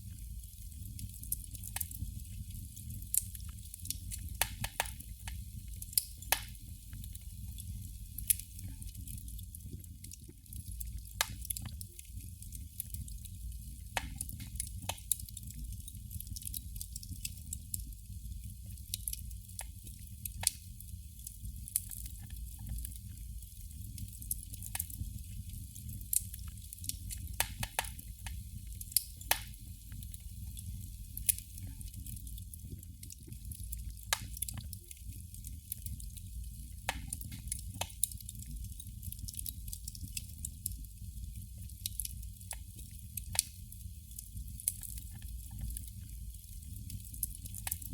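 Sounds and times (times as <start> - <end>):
candle flame crackling: 0.0 - 47.9.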